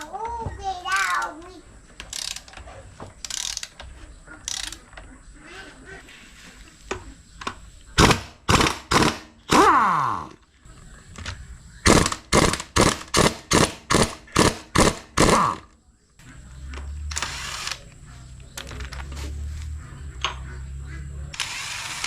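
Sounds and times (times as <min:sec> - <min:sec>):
tool falling whine: 0:15.2 - 0:22.0
tool mechanical strokes: 0:17.0 - 0:19.8, 0:21.3 - 0:22.0.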